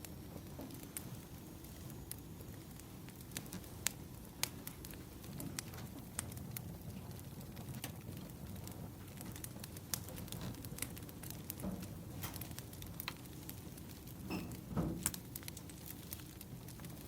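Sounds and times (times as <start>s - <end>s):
firewood crackling and popping: 0.0s - 17.0s
low rumble of flames: 0.0s - 17.0s.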